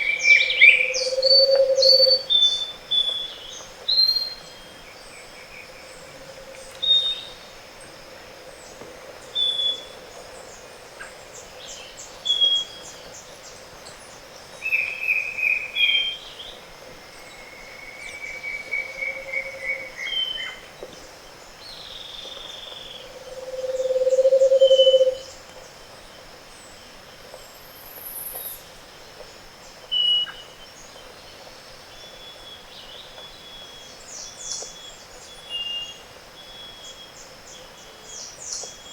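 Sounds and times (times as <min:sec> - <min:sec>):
birds whistling and trilling: 0:00.0 - 0:03.3, 0:22.8 - 0:25.2
faint high insect whine: 0:00.0 - 0:38.9
low trilled bird hoots: 0:00.1 - 0:02.2, 0:23.0 - 0:25.3.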